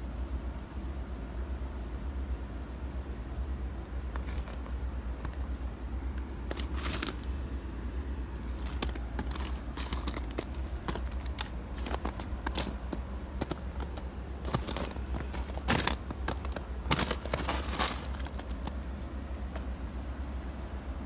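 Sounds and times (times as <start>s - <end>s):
footsteps crunching on icy snow: 6.2s - 19.9s.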